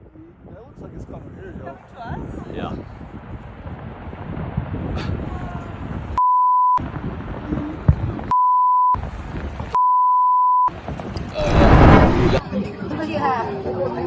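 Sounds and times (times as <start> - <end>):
censor bleep tone: 6.2 - 6.8, 8.3 - 9.0, 9.8 - 10.7.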